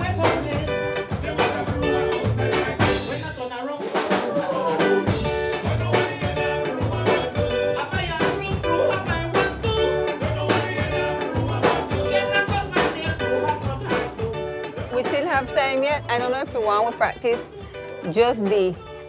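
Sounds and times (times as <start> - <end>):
drum strikes: 0.0 - 13.2.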